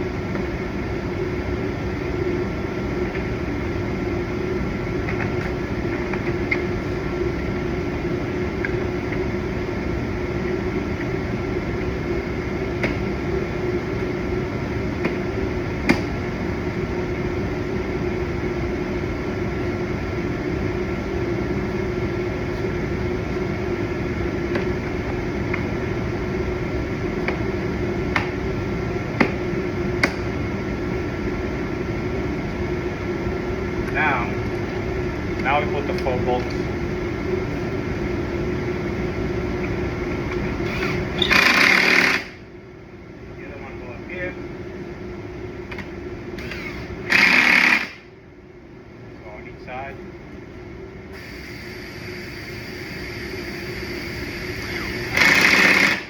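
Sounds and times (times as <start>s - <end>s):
fan humming: 0.0s - 56.0s.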